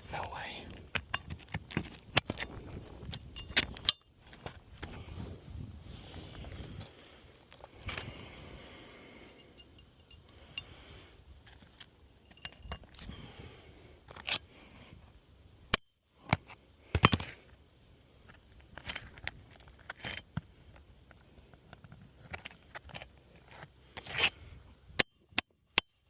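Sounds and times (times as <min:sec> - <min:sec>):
metallic clinks of nails: 0:03.1 - 0:04.6, 0:09.2 - 0:11.3, 0:12.0 - 0:13.0.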